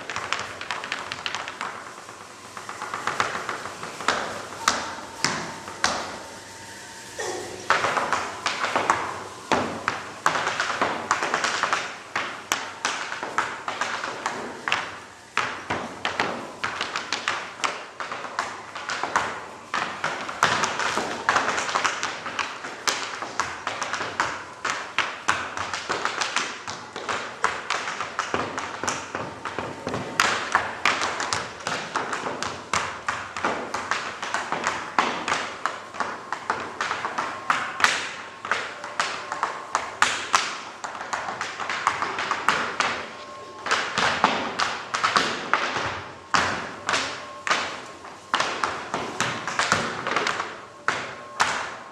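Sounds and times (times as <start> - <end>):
tap shoes clicking on stage: 0.0 - 6.2
heavy foot stamps: 0.0 - 6.3.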